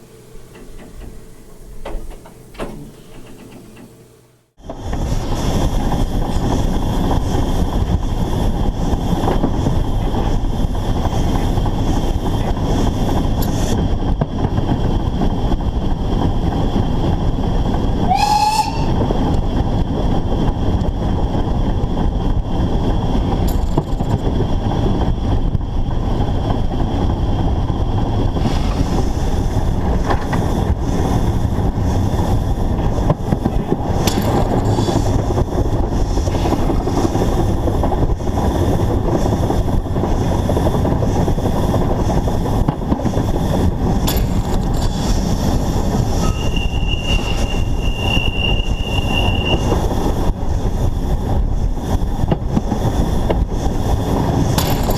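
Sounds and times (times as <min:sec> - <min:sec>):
steam locomotive running: 0:00.0 - 0:54.9.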